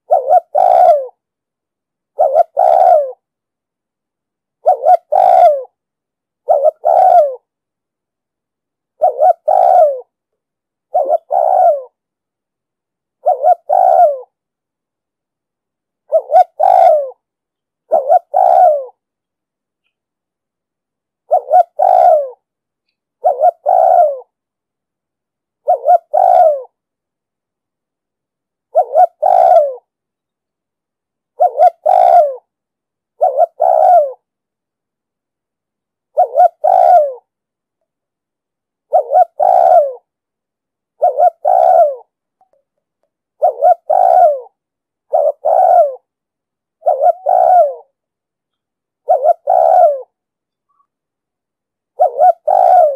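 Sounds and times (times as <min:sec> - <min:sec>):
dove cooing: 0:00.0 - 0:01.2, 0:02.1 - 0:03.2, 0:04.6 - 0:05.8, 0:06.4 - 0:07.5, 0:09.0 - 0:10.2, 0:10.9 - 0:12.0, 0:13.2 - 0:14.4, 0:16.1 - 0:17.2, 0:17.9 - 0:19.0, 0:21.2 - 0:22.5, 0:23.2 - 0:24.4, 0:25.6 - 0:26.8, 0:28.7 - 0:29.9, 0:31.4 - 0:32.5, 0:33.2 - 0:34.3, 0:36.1 - 0:37.3, 0:38.9 - 0:40.1, 0:41.0 - 0:42.2, 0:43.4 - 0:46.1, 0:46.8 - 0:48.0, 0:49.0 - 0:50.9, 0:51.9 - 0:52.9.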